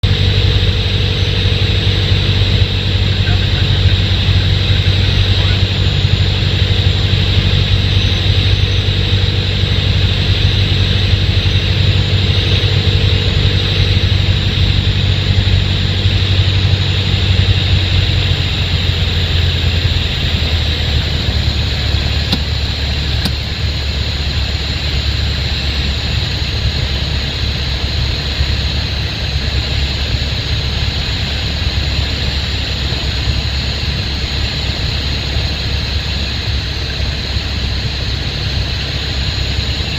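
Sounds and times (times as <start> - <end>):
air noise: 0.0 - 39.9
aircraft engine and propeller drone: 0.0 - 39.9.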